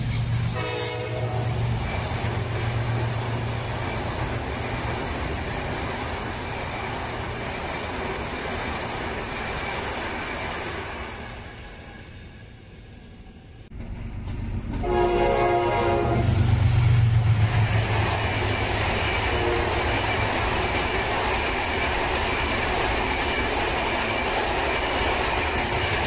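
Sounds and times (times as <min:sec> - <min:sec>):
train wheels clickety-clack: 0:00.0 - 0:11.2, 0:13.7 - 0:15.6, 0:16.2 - 0:26.0
train horn blast: 0:00.5 - 0:01.8, 0:14.8 - 0:17.0, 0:19.2 - 0:20.0
locomotive engine rumble: 0:13.0 - 0:26.0.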